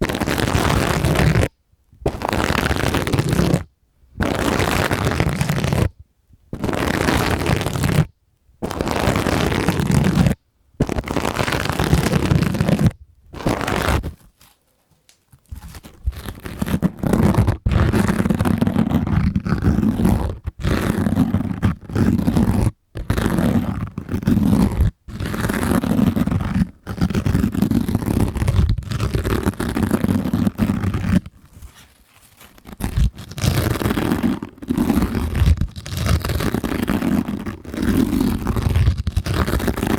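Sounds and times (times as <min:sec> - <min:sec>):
sponges squeezed and rubbed: 0:08.7 - 0:14.6, 0:23.0 - 0:39.9.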